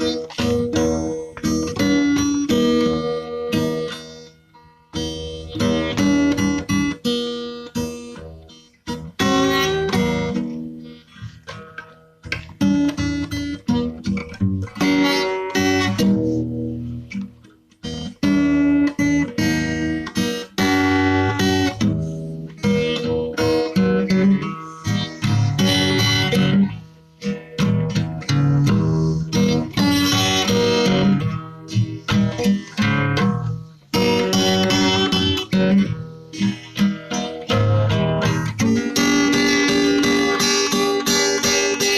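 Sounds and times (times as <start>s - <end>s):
acoustic guitar chords: 0.0s - 41.9s.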